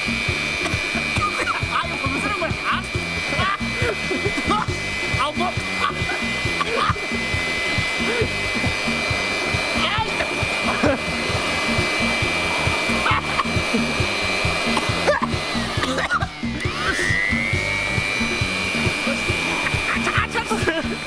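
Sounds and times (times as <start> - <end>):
air blower whining: 0.0 - 21.0.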